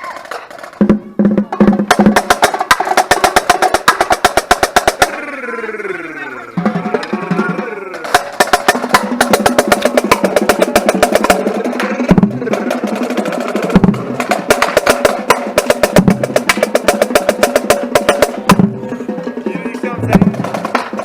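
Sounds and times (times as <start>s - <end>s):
deep drum hits: 20.0s - 20.9s.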